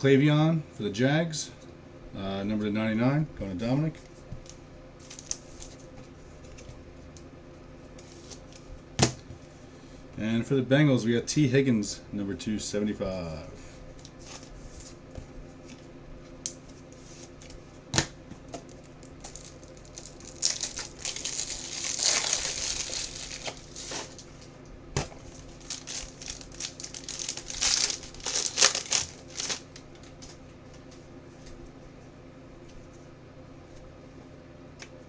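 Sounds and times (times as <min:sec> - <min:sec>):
plastic packaging crinkling: 0:05.0 - 0:05.8, 0:18.5 - 0:30.4.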